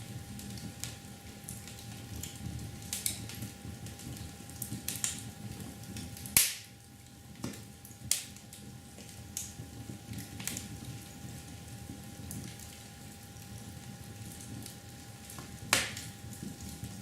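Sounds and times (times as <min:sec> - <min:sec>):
loud snap: 0:06.4 - 0:06.6.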